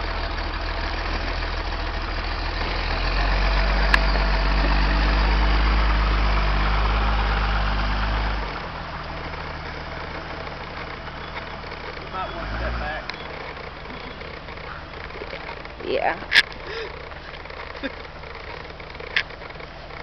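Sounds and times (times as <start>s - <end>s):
engine running low hum: 0.0s - 20.0s.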